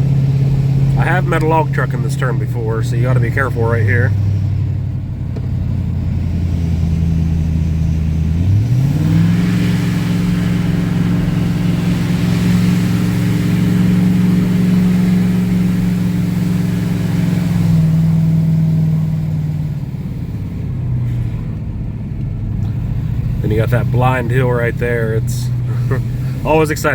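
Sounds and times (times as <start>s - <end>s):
truck engine revving uphill: 0.0s - 26.9s.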